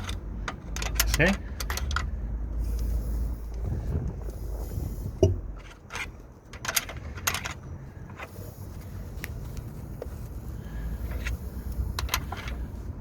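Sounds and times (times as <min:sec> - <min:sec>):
timing chain rattle: 0:00.0 - 0:02.1
engine running low rumble: 0:00.0 - 0:13.0.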